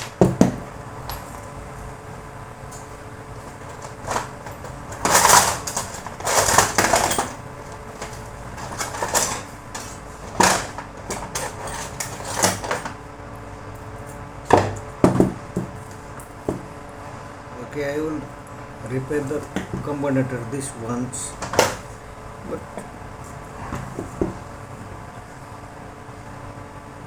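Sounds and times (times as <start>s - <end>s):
faint steady hum: 0.0s - 27.0s
parts scraping: 3.4s - 13.0s
metal parts knocking on bench: 8.0s - 13.0s.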